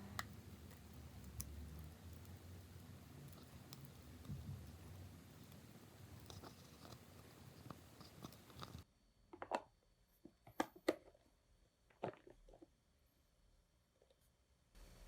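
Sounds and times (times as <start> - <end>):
utensils clicking and tapping: 0.0 - 8.8
background hiss: 0.0 - 9.3, 12.9 - 15.0.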